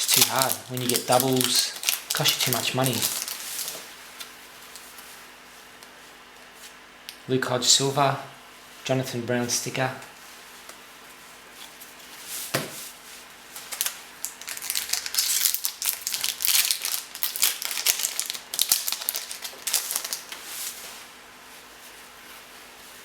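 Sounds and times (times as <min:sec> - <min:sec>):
foil pack tearing and crinkling: 0:00.0 - 0:03.9, 0:13.6 - 0:20.5.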